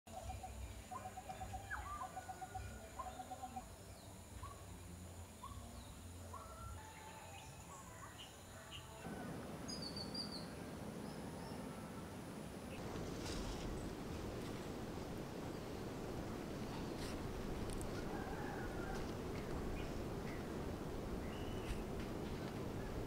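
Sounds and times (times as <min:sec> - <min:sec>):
birds chirping: 0:05.4 - 0:23.0.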